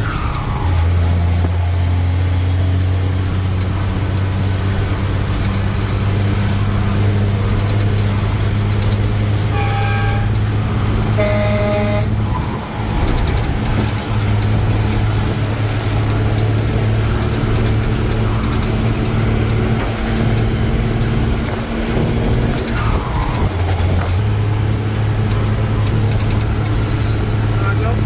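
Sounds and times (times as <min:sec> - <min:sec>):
truck engine running: 0:00.0 - 0:28.0
vehicle horn toot: 0:09.5 - 0:12.3.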